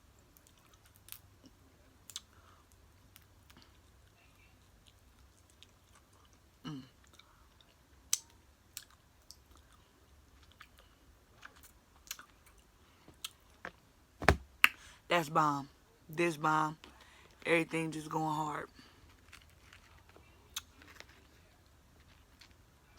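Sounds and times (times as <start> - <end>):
chewing crunchy food: 0.2 - 13.6, 18.8 - 22.9.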